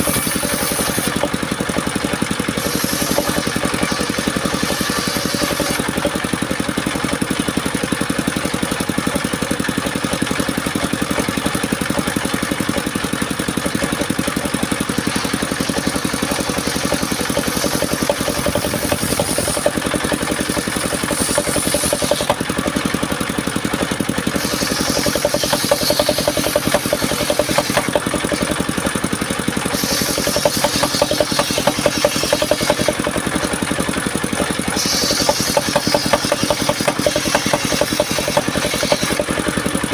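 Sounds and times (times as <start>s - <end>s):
saw blade cutting wood hiss: 0.0s - 1.4s, 2.4s - 6.0s, 14.9s - 22.5s, 24.2s - 28.6s, 29.6s - 33.6s, 34.6s - 39.4s
sawmill engine running: 0.0s - 39.9s.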